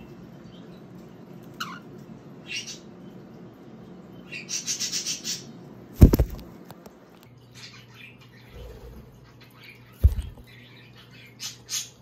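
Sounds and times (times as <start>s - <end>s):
bird landing thumps on camera: 6.0s - 6.5s, 10.0s - 10.4s.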